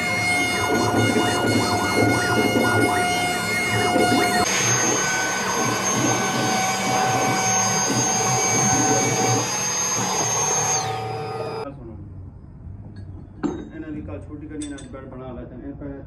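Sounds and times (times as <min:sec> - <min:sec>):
cutting noise: 0:00.0 - 0:11.6
router spindle high whine: 0:00.0 - 0:11.6.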